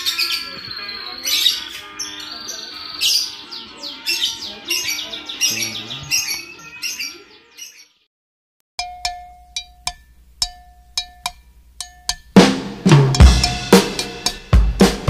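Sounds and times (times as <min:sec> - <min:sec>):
faint music: 0:00.0 - 0:08.0
small birds chirping: 0:00.0 - 0:08.1.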